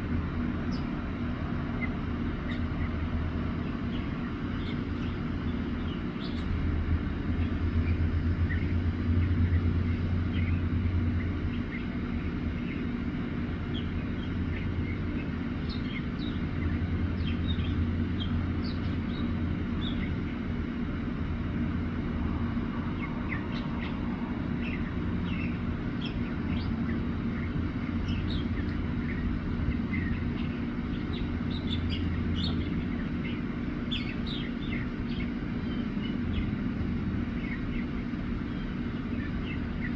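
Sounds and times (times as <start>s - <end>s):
mockingbird singing: 0.2s - 39.9s.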